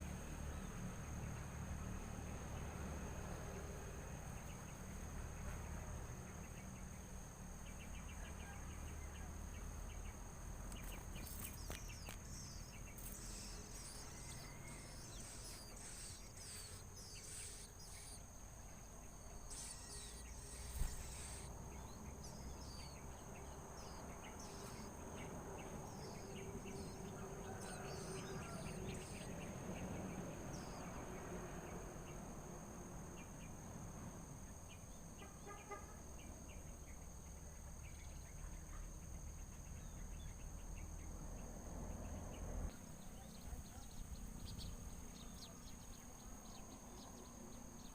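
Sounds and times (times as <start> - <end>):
insects droning: 0.0 - 47.9
high bird chirps: 10.7 - 31.0.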